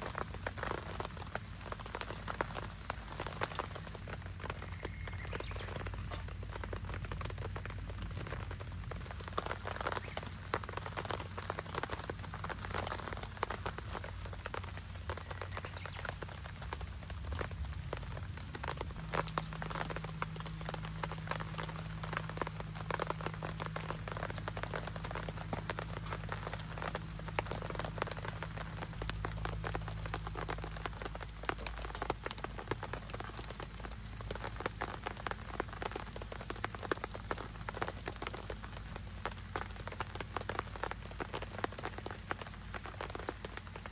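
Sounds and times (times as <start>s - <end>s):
rain pattering on a surface: 0.0s - 43.9s.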